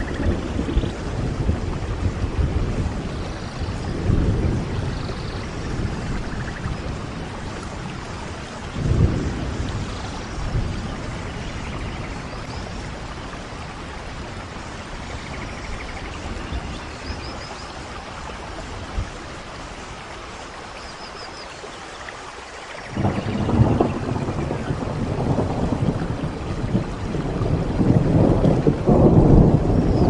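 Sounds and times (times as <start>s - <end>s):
low thunder rumble: 0.0s - 20.1s, 22.9s - 30.0s
rain pouring: 0.0s - 30.0s.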